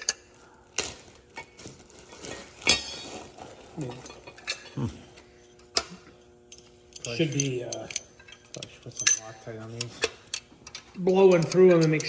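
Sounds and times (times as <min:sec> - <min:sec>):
metal engine parts clinking: 0:01.3 - 0:04.8, 0:06.5 - 0:12.0.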